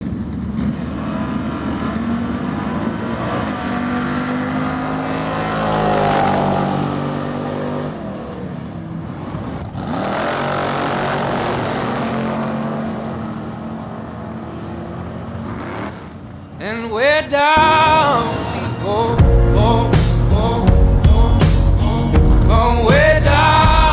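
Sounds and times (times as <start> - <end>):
engine revving: 0.0 - 16.6.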